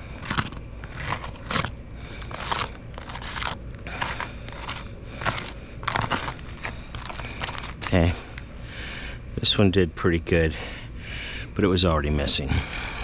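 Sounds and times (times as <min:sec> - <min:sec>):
roof shingles crunching and scraping: 0:00.0 - 0:08.1.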